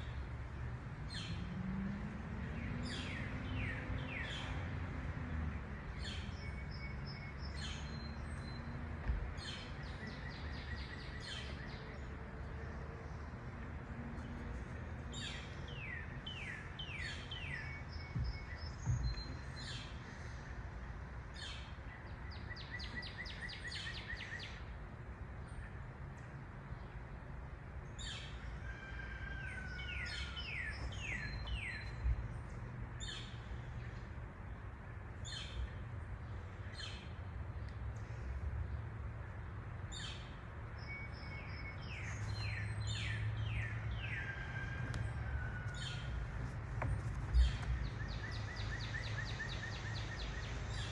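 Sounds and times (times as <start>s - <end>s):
songbirds singing: 0.0s - 50.9s
soft low thumps: 18.0s - 19.4s.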